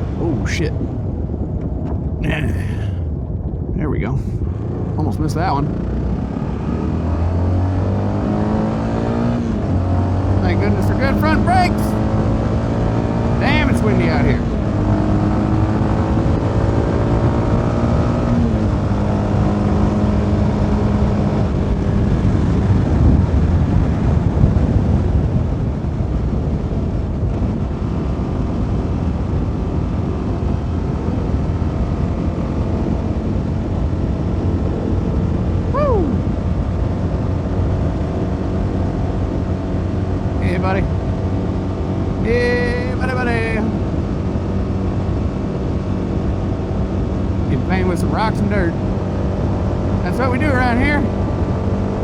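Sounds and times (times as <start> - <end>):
wind noise on microphone: 0.0 - 52.0
motorcycle engine cruising: 3.8 - 25.6.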